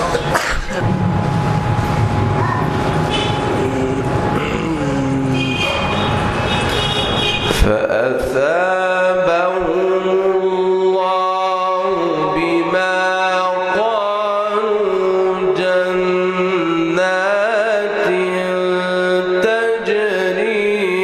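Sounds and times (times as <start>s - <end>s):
man reciting melodically: 3.3s - 6.3s, 7.5s - 21.0s.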